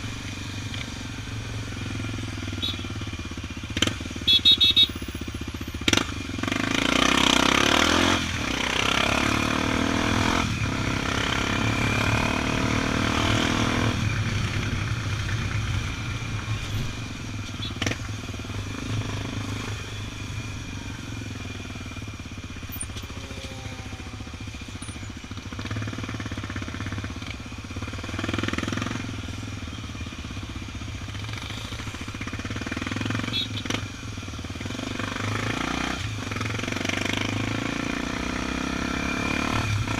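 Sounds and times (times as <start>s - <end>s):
wind and road noise: 0.0s - 23.4s
motorcycle engine running: 0.0s - 39.9s.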